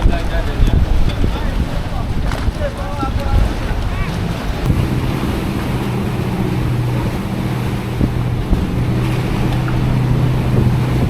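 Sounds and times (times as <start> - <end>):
wind noise on microphone: 0.0 - 11.0
engine humming: 1.0 - 11.0.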